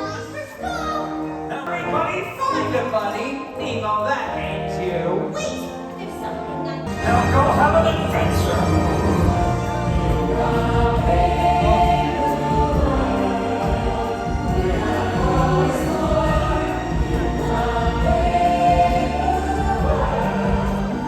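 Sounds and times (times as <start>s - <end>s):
musical accompaniment: 0.0s - 21.0s
cast singing together: 6.9s - 21.0s.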